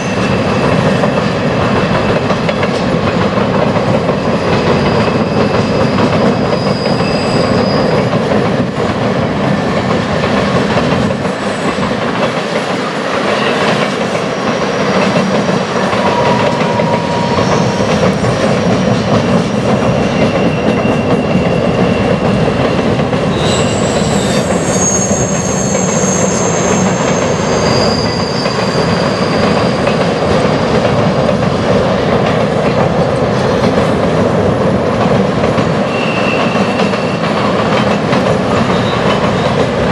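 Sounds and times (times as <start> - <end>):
train wheels rumbling over bridge: 0.0 - 39.9
high-pitched wheel squeals: 6.5 - 8.1, 16.0 - 18.1, 23.3 - 30.2, 35.9 - 37.2.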